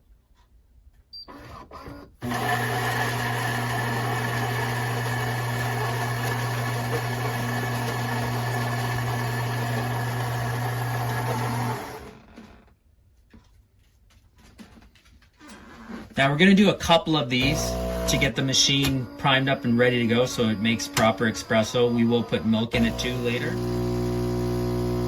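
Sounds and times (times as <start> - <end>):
coffee grinder grinding beans: 2.2 - 12.6, 16.6 - 25.0.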